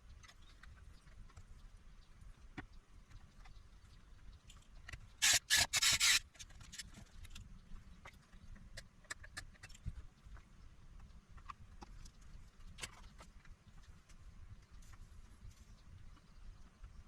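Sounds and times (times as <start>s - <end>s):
scraping on circuit board: 5.2s - 7.0s.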